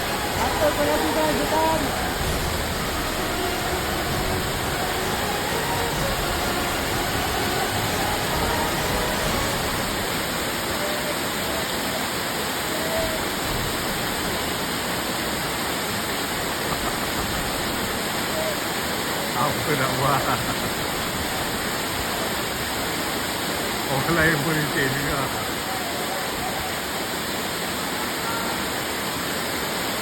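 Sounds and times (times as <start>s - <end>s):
faint voices: 0.0s - 13.8s
waterfall roaring: 0.0s - 30.0s.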